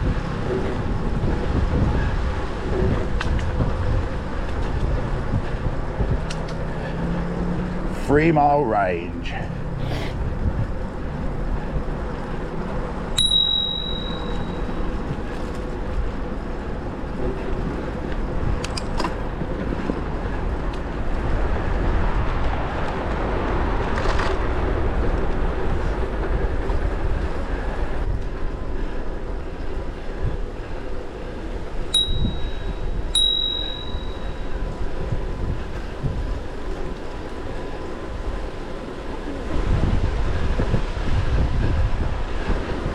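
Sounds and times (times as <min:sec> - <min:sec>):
bicycle riding rumble: 0:00.0 - 0:42.9
bicycle bell ringing: 0:13.2 - 0:15.4, 0:31.9 - 0:34.8.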